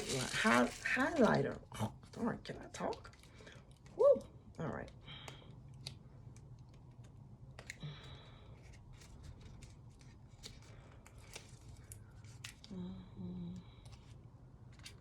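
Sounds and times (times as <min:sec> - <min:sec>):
packaging being handled: 0:00.0 - 0:01.5.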